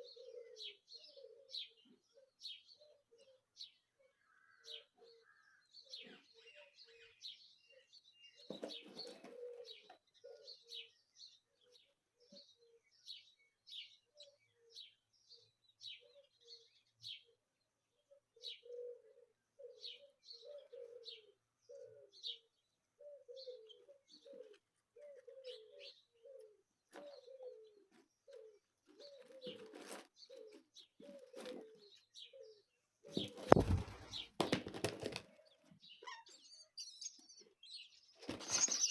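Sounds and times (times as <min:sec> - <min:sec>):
wings flapping: 0:33.2 - 0:35.3, 0:38.2 - 0:38.9
nestlings chirping: 0:38.3 - 0:38.9.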